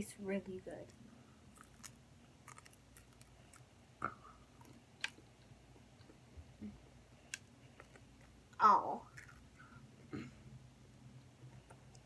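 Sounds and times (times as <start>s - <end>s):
person chewing: 1.5s - 10.2s.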